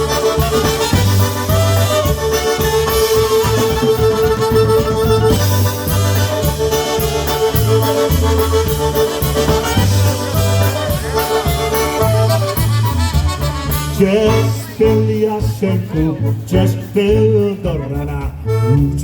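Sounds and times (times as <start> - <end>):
accordion melody: 0.0 - 19.0
drum beat: 0.0 - 19.0
oom-pah bass: 0.0 - 19.0.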